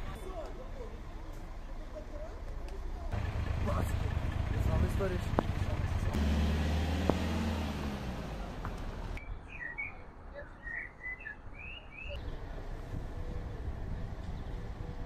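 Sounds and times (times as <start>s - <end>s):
low traffic hum: 0.0s - 15.0s
small birds chirping: 8.8s - 12.5s.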